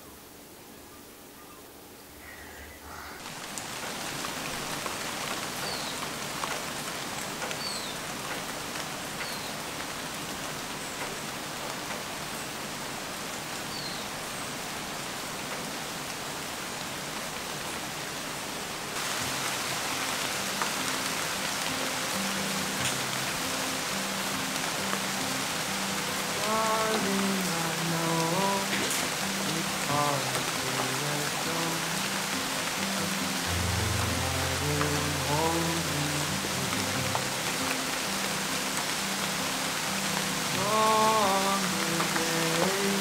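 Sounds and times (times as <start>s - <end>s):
rain hissing on surfaces: 2.0s - 43.0s
soft music: 19.0s - 43.0s.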